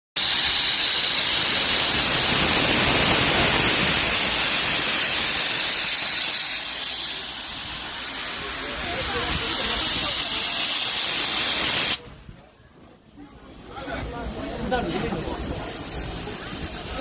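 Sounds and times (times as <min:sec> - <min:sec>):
steam locomotive hissing: 0:00.2 - 0:17.0.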